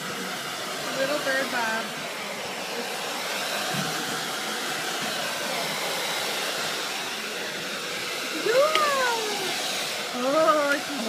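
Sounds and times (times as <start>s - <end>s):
blow dryer running: 0.0s - 11.0s.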